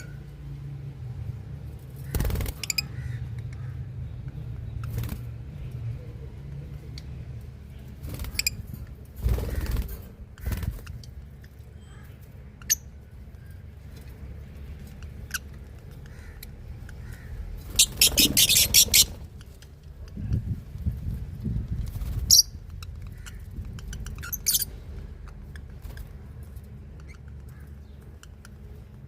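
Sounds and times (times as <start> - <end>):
low steady rumble: 0.0 - 29.0
small birds chirping: 0.0 - 29.0.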